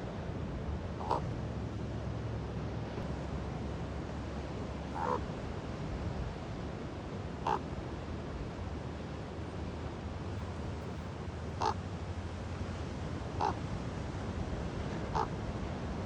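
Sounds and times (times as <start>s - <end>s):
low background rush: 0.0s - 16.0s
raven croaking: 1.0s - 1.3s, 4.9s - 5.2s, 7.4s - 7.6s, 11.6s - 11.8s, 13.4s - 13.6s, 15.1s - 15.3s.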